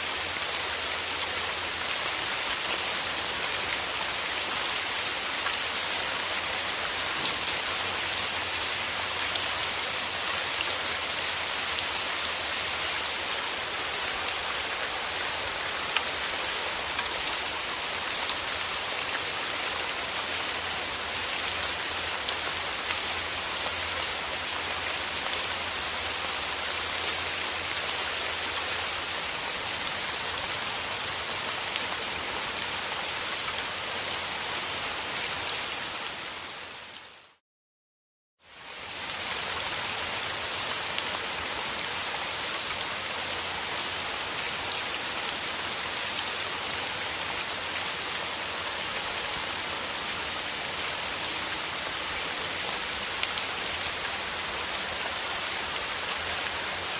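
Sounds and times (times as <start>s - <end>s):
raindrops ticking on surfaces: 0.0s - 32.4s
steady rain hiss: 0.0s - 37.4s, 38.5s - 56.9s.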